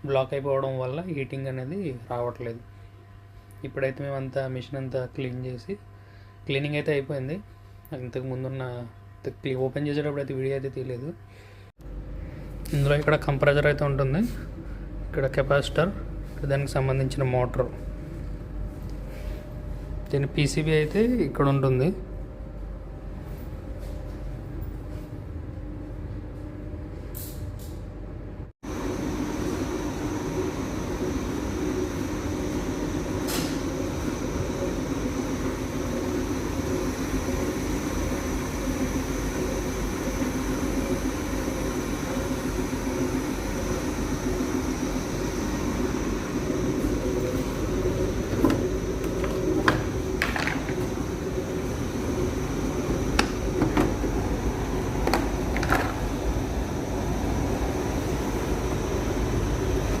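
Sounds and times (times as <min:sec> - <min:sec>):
high whine: 0:28.6 - 1:00.0
tumble dryer humming: 0:28.6 - 1:00.0.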